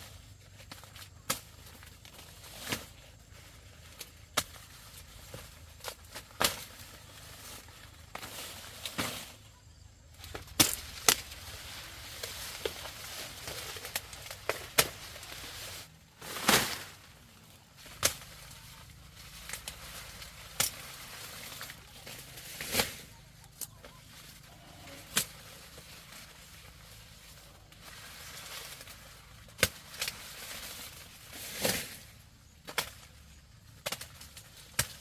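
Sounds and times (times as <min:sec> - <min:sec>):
faint outdoor hiss: 0:00.0 - 0:35.0
sharp snaps and cracks: 0:00.5 - 0:03.0, 0:10.1 - 0:15.4, 0:17.8 - 0:24.0, 0:25.0 - 0:26.8, 0:27.7 - 0:32.0, 0:32.6 - 0:35.0.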